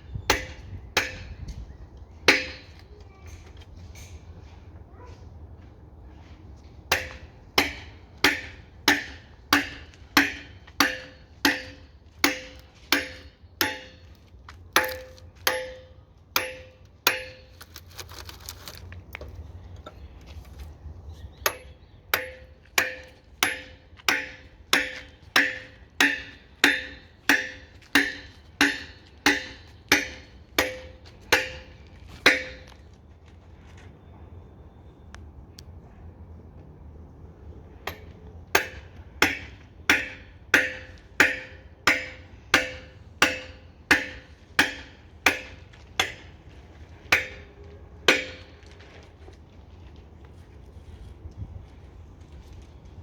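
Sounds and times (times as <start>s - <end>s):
hammer blows ringing: 2.3s - 2.8s, 6.9s - 14.2s, 14.8s - 17.6s, 21.5s - 32.8s, 37.9s - 48.7s.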